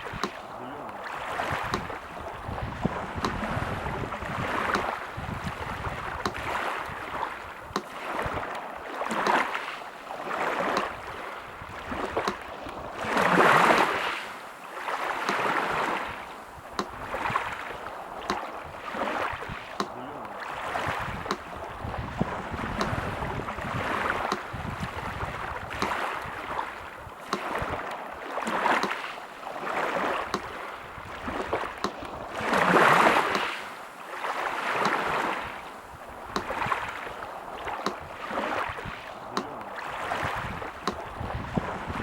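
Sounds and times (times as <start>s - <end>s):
sea surf washing in: 0.0s - 42.0s
metronome ticking: 4.7s - 4.9s, 7.7s - 7.9s, 16.8s - 17.0s, 24.3s - 24.5s.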